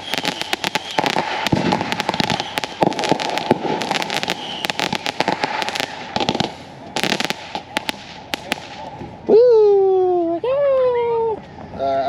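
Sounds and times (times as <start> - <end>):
fireworks crackling and banging: 0.0 - 9.3.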